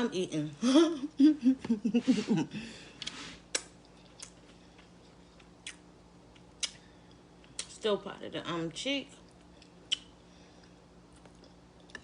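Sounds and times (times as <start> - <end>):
wet mouth clicks and smacks: 3.0 - 4.4, 5.4 - 6.8, 9.3 - 10.1.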